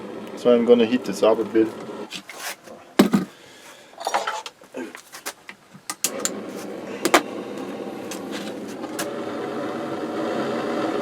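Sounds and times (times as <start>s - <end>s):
heating tool blowing: 6.0s - 11.0s.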